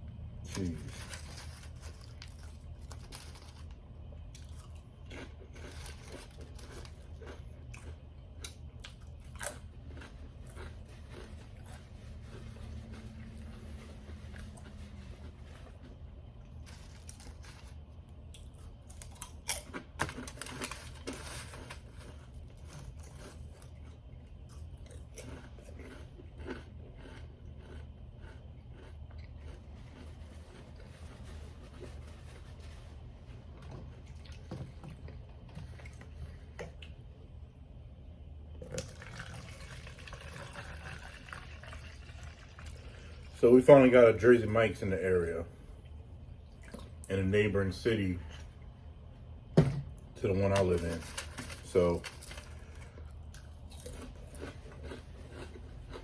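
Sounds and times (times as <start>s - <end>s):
crunchy bites and chewing: 0.2s - 32.5s, 50.5s - 56.0s.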